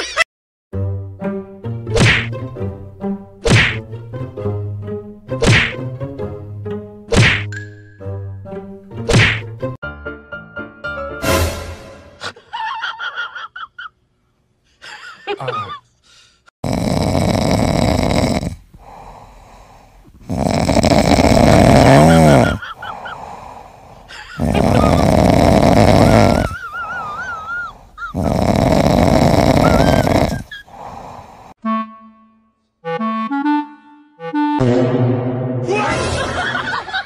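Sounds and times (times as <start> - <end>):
kitten snoring with wheeze: 16.6 - 22.6, 23.2 - 26.6, 28.1 - 31.5.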